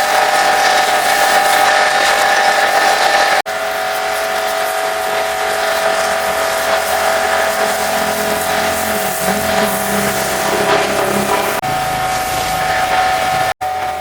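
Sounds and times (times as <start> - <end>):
motor and pump hum: 0.0 - 14.0
pressure washer spray hiss: 3.6 - 13.5.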